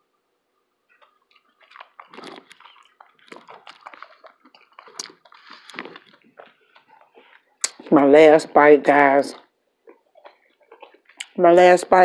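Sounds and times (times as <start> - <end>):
person chewing food: 0.9 - 7.8, 9.4 - 11.4.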